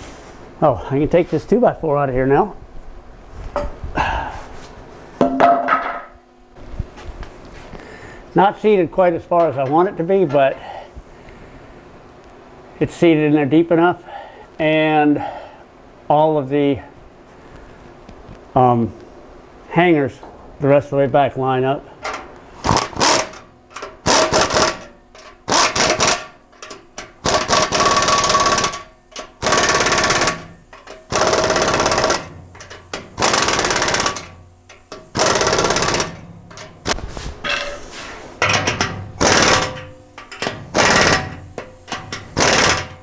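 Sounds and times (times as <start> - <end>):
impact wrench rattling: 5.2 - 6.2, 22.0 - 43.0.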